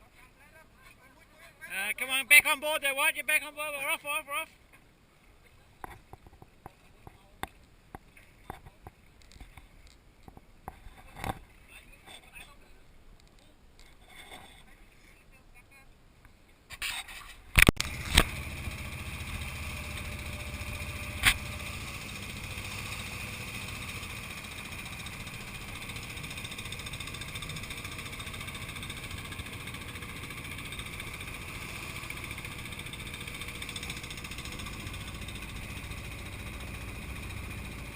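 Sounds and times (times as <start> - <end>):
boat engine droning: 17.8 - 37.9.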